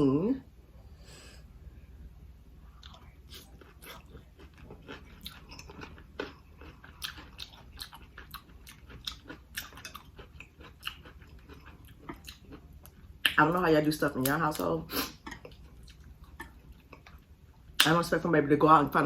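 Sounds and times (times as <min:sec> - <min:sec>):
person chewing: 0:02.6 - 0:13.6, 0:14.2 - 0:17.9.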